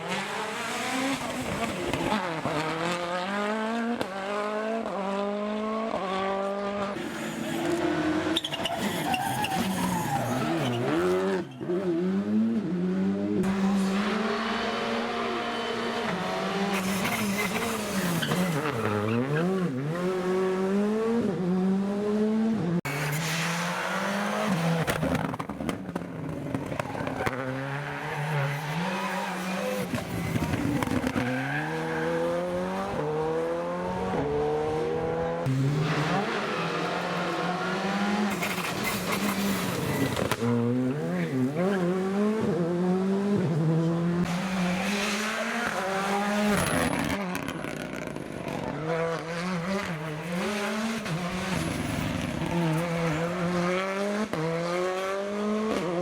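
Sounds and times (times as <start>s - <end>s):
rally car engines revving hard: 0.0s - 56.0s.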